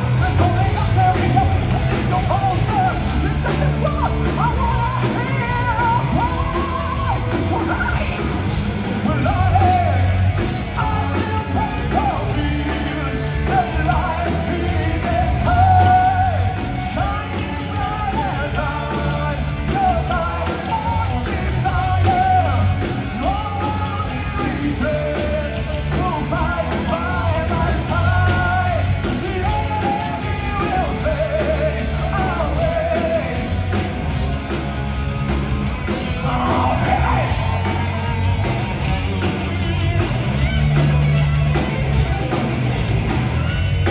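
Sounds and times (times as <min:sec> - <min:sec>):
vocalist singing and yelling: 0:00.0 - 0:41.2
bass guitar: 0:00.0 - 0:43.9
distorted guitars: 0:00.0 - 0:43.9
drums: 0:00.0 - 0:43.9.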